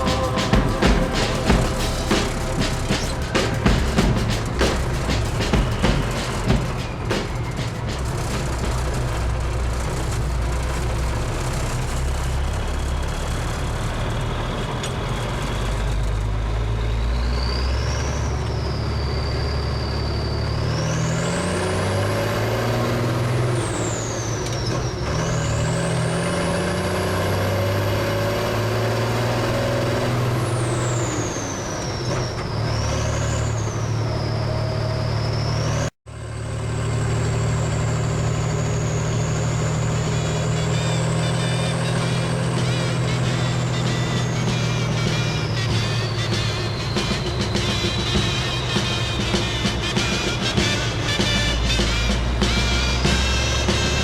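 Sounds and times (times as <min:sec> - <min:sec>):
high whine: 0:00.0 - 0:12.0
truck diesel engine accelerating: 0:00.0 - 0:54.0.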